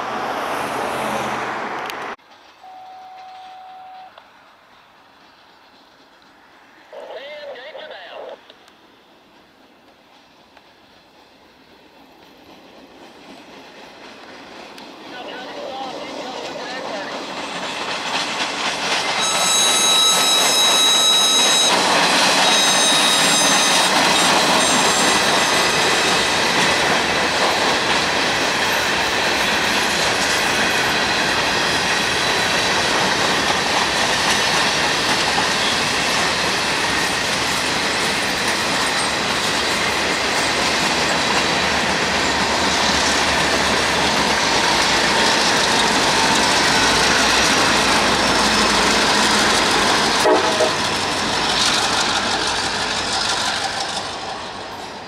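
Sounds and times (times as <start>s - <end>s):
diesel locomotives running: 0.0s - 55.0s
train wheels clattering and squealing: 9.4s - 55.0s
train air whistle: 19.2s - 24.0s, 50.2s - 50.9s.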